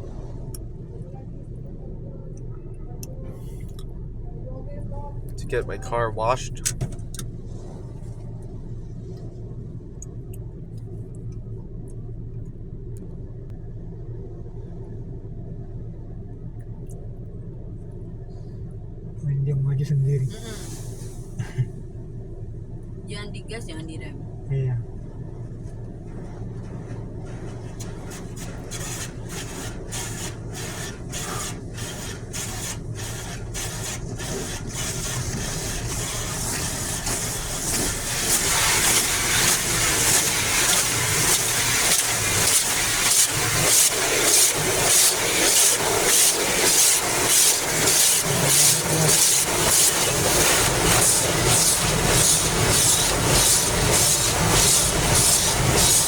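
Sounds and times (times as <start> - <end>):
car wash hissing: 19.8 - 22.0, 25.3 - 56.0
car wash swishing: 20.1 - 21.7, 24.9 - 56.0.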